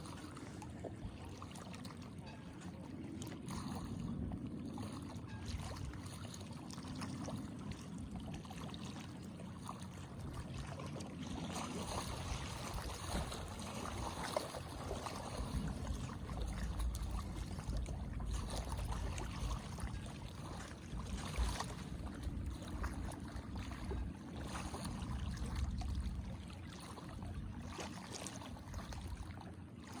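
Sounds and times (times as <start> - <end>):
small waves lapping and splashing: 0.0 - 30.0
low uneven rumble: 9.3 - 27.7.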